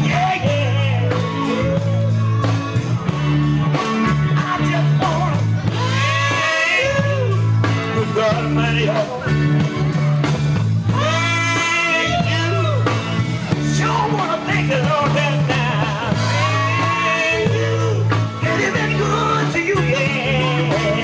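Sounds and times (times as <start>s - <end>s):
bass line: 0.0s - 21.0s
guitar: 0.0s - 21.0s
gospel group singing: 4.3s - 9.9s, 10.9s - 21.0s.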